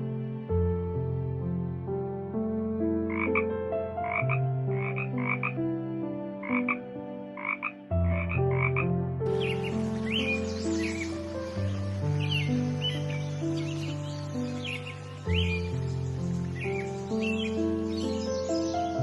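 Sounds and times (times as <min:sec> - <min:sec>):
soft background music: 0:00.0 - 0:19.0
croaking animal calls: 0:07.4 - 0:08.9.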